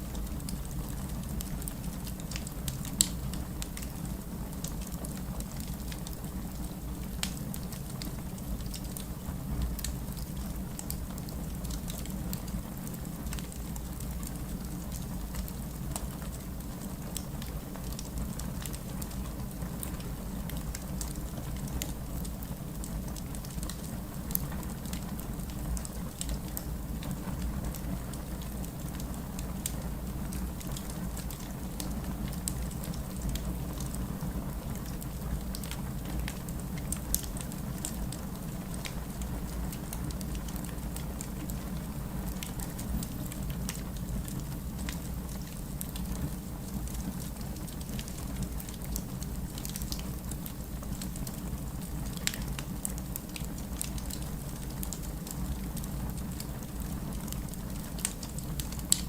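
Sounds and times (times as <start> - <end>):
steady rain: 0.0 - 59.0
fireplace crackling: 0.1 - 59.0.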